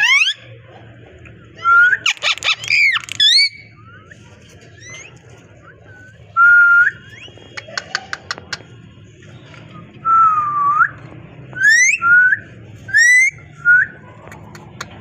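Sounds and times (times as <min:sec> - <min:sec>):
parrot calling and whistling: 0:00.0 - 0:00.4, 0:01.6 - 0:04.2, 0:11.6 - 0:12.1.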